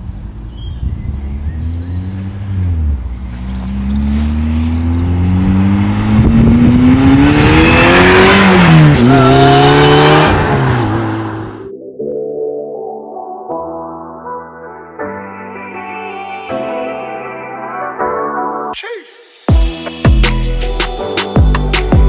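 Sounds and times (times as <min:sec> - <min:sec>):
car engine accelerating hard: 0:00.0 - 0:11.7.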